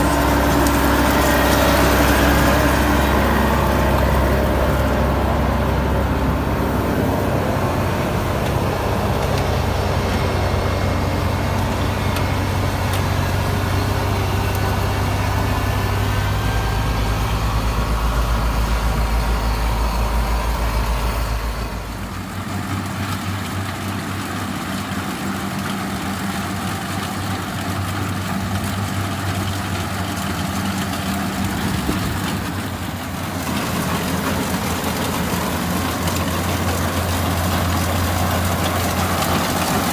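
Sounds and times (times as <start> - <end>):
combine harvester diesel engine: 0.0 - 39.9.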